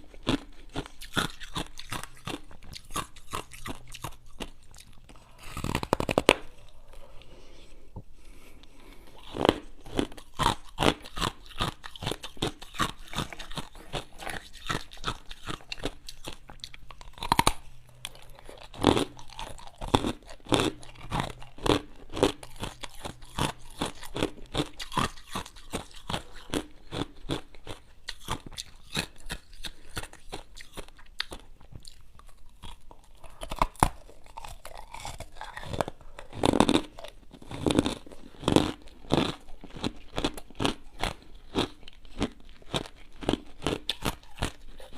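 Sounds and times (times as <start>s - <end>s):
person crunching ice: 5.2s - 6.6s, 9.0s - 16.4s, 33.2s - 44.9s.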